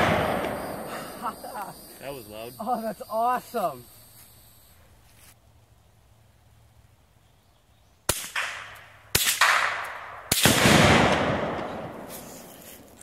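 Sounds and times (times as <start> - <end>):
rifle shots: 0.0 - 0.9, 8.1 - 12.2
exploding targets with echo: 0.0 - 1.1, 8.1 - 12.2.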